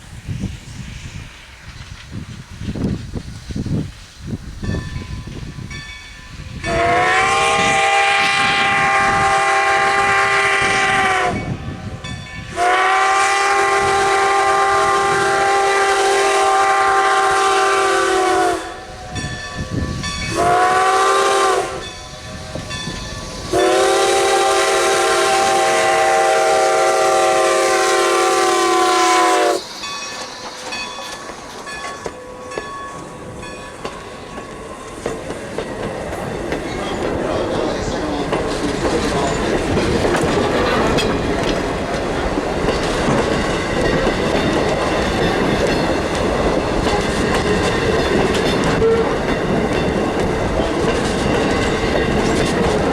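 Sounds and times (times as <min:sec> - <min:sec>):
train rail clatter: 0:00.0 - 0:52.9
steam locomotive whistle blasts: 0:06.6 - 0:30.5, 0:48.6 - 0:49.3.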